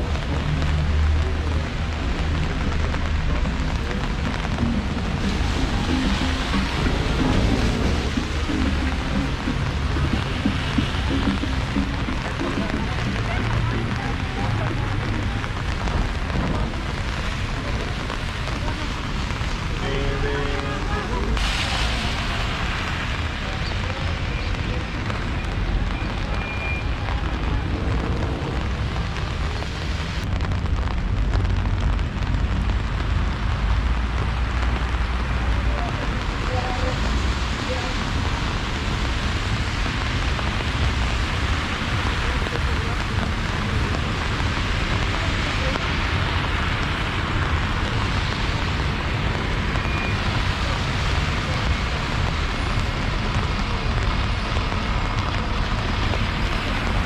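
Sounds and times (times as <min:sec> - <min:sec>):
low rumble: 0:00.0 - 0:25.8
low traffic rumble: 0:00.0 - 0:57.0
steady rain hiss: 0:00.1 - 0:25.8, 0:26.7 - 0:57.0.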